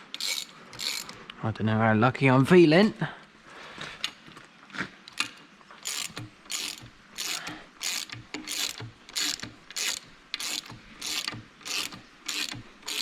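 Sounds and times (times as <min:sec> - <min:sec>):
hand ratchet clicking: 0:00.1 - 0:01.2, 0:05.1 - 0:13.0.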